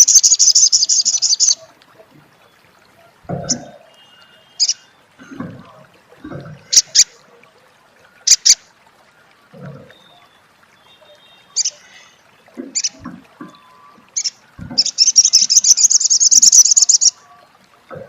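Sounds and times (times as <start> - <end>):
bird chip calls: 0.0 - 1.6, 8.3 - 8.6, 12.7 - 17.2.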